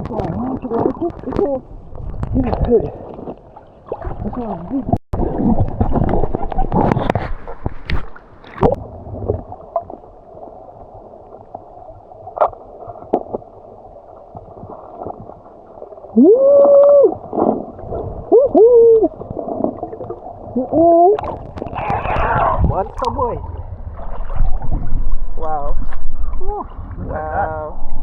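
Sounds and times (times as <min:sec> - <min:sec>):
muffled underwater water wash: 0:00.0 - 0:28.0
underwater knocks: 0:03.9 - 0:09.5
voice calling through water: 0:16.1 - 0:23.6, 0:26.3 - 0:28.0.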